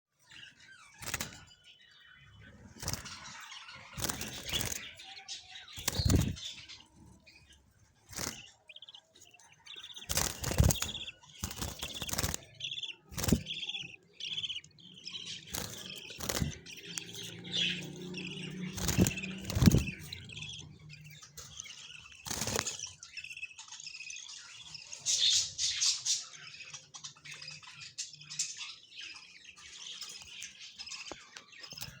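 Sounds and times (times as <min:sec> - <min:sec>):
budgerigars chirping: 0:00.2 - 0:32.0
loud rustles: 0:10.1 - 0:12.5, 0:13.1 - 0:13.6, 0:15.5 - 0:17.7, 0:18.6 - 0:20.6.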